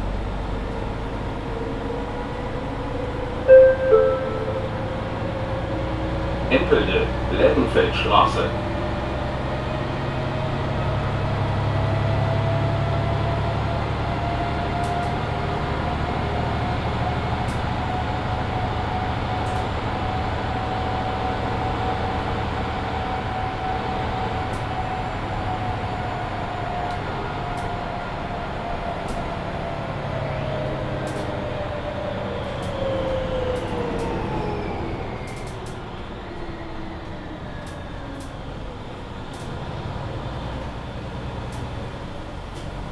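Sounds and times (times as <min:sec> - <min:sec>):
bus engine rumble and whine: 0:00.0 - 0:42.9.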